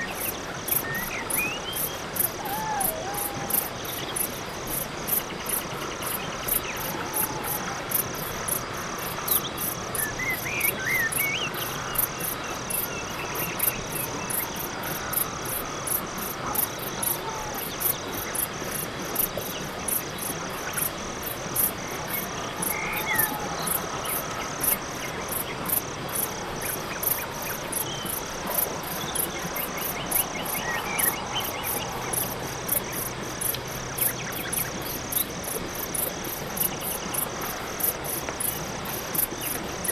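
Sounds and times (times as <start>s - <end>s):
crickets chirping: 0.0s - 39.9s
insect drone: 0.0s - 39.9s
faint animal calls: 2.2s - 4.2s, 6.8s - 8.0s.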